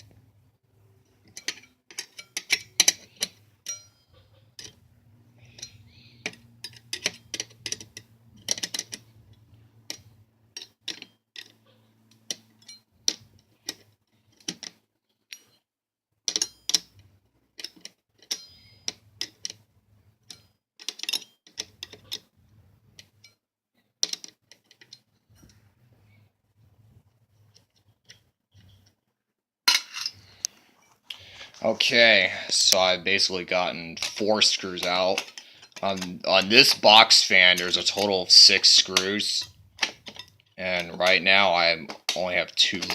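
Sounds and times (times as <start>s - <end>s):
hand tool clicking on screw: 1.3s - 3.9s, 34.0s - 41.2s.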